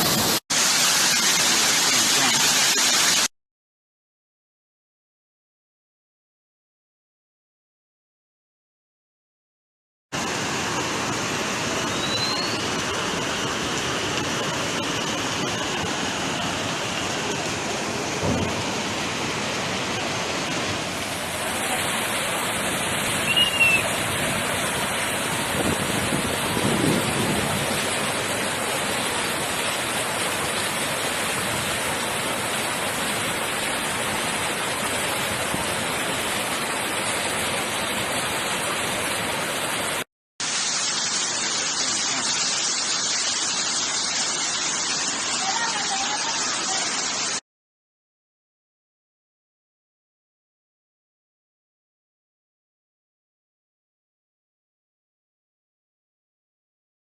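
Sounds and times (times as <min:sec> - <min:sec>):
floodwater rushing: 0:00.0 - 0:03.3, 0:10.2 - 0:47.4.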